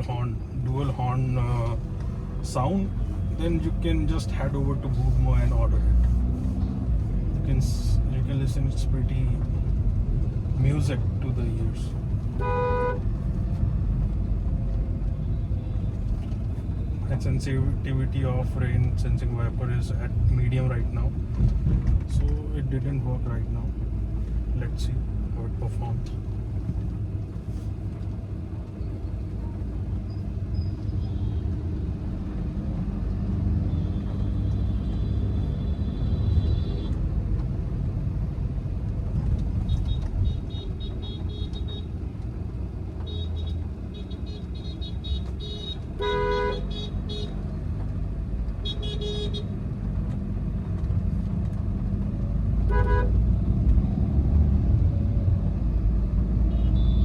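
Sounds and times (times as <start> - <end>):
car road and engine rumble: 0.0 - 57.0
car horn toots: 12.4 - 13.0, 39.7 - 41.9, 43.0 - 47.4, 48.6 - 49.5, 52.7 - 53.2, 56.5 - 57.0.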